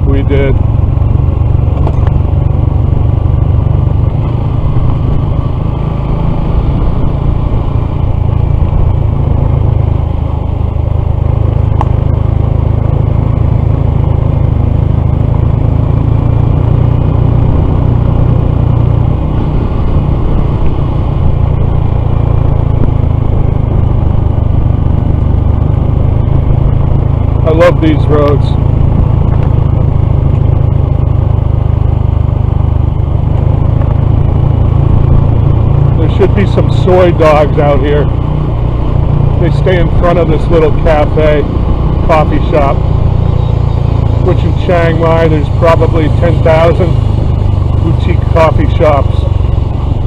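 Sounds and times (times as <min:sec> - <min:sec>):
heavy low rumble: 0:00.0 - 0:50.0
motorcycle engine running: 0:00.0 - 0:50.0.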